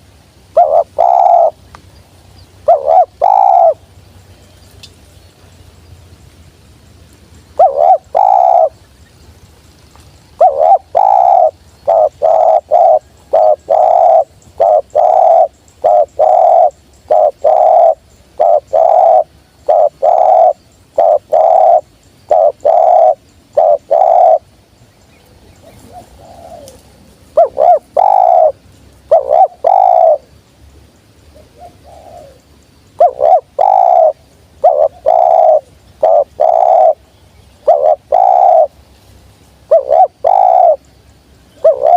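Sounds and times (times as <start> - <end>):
doves cooing: 0.0 - 1.6, 2.6 - 3.9, 7.5 - 8.8, 10.4 - 24.5, 25.5 - 30.3, 31.3 - 37.0, 37.6 - 38.8, 39.7 - 40.9, 41.5 - 41.9.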